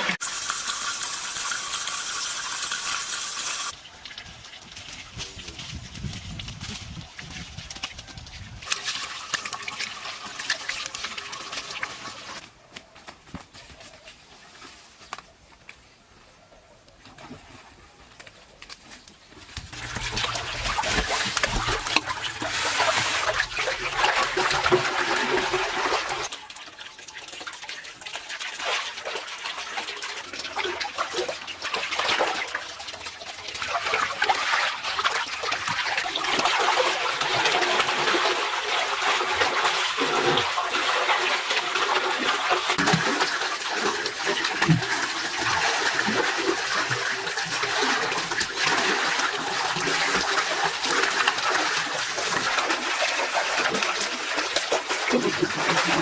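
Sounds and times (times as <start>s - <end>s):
water rushing and splashing: 19.7s - 26.3s, 28.5s - 56.0s.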